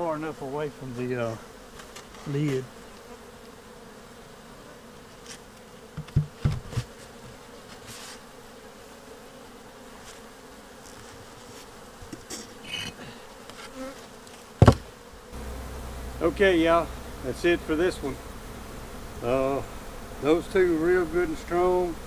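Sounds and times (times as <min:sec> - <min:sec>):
honeybees buzzing: 0:00.0 - 0:22.0
loud knocks: 0:06.0 - 0:06.8, 0:14.6 - 0:15.5.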